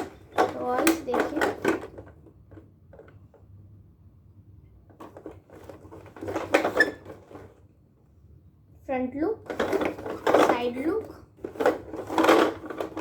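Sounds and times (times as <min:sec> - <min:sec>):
plastic toy truck clicks and clatter: 0:00.0 - 0:03.3, 0:04.9 - 0:07.6, 0:09.5 - 0:13.0.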